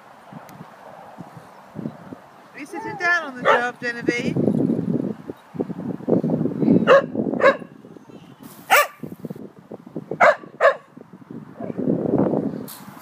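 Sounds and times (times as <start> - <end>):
wind buffeting microphone: 0.0 - 13.0
dog barking: 3.4 - 3.7, 6.8 - 7.7, 8.7 - 9.0, 10.2 - 10.9.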